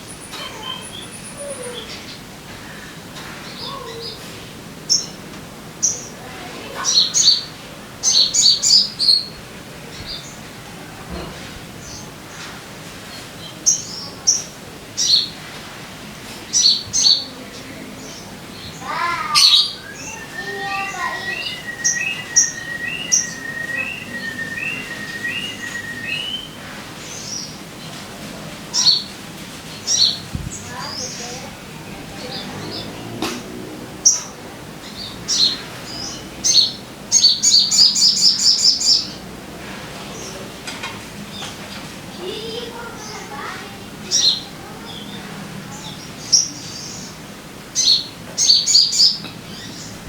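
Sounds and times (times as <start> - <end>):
bird singing high chirps: 18.1 - 27.6.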